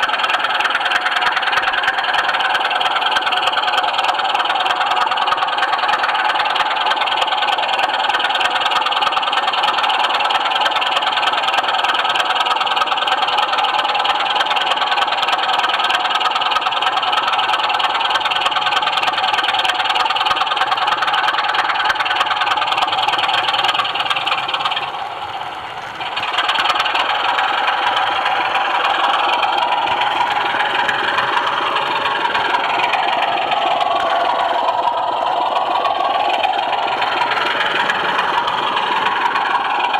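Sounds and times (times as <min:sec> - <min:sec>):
fast clicking of wheels: 0:00.0 - 0:39.9
model train running on track: 0:00.0 - 0:39.9.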